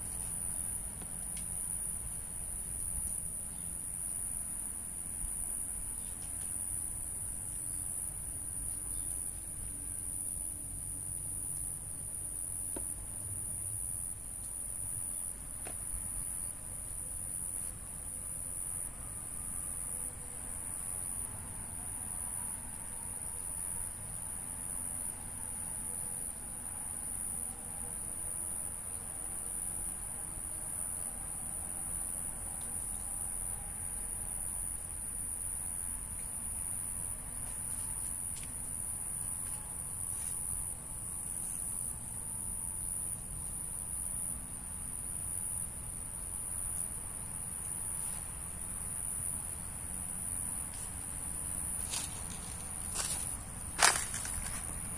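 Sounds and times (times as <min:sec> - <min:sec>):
insects calling: 0:05.2 - 0:11.7, 0:27.0 - 0:54.9.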